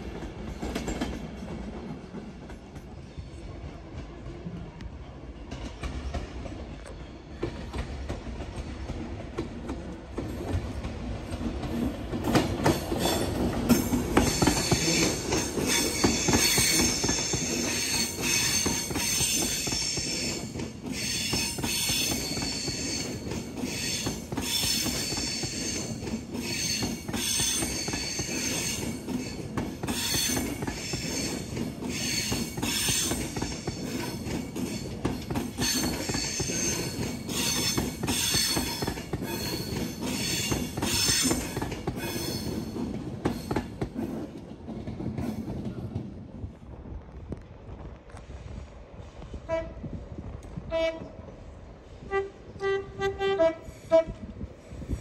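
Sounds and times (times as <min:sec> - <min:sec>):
train wheels clicking over joints: 0:00.0 - 0:03.0, 0:05.4 - 0:46.2
low train rumble: 0:00.0 - 0:55.0
train wheels squealing: 0:12.6 - 0:44.2.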